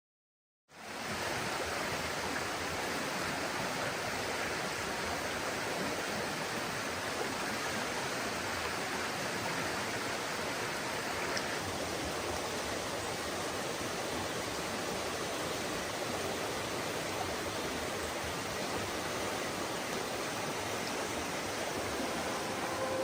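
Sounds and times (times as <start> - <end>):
rushing water: 0.7 - 23.0.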